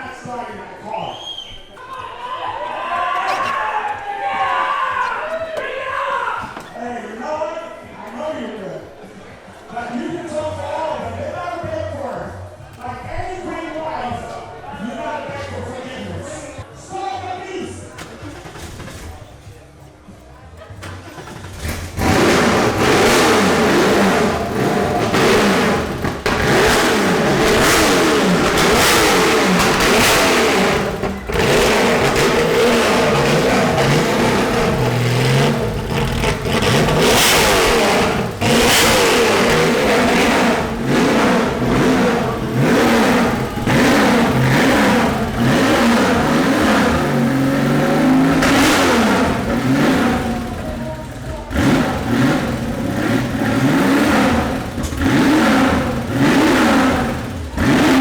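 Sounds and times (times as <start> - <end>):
car engine revving: 20.6 - 58.0.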